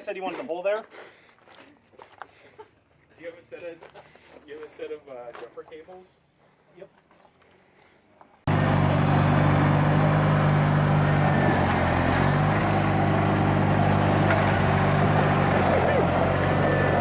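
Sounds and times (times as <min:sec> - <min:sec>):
lawn tractor engine running: 0:08.5 - 0:17.0.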